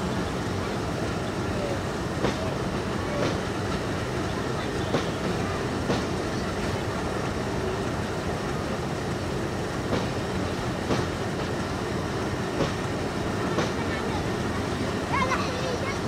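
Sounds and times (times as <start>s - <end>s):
train coaches rumbling: 0.0s - 16.0s
wheel clicks at rail joints: 2.1s - 14.0s.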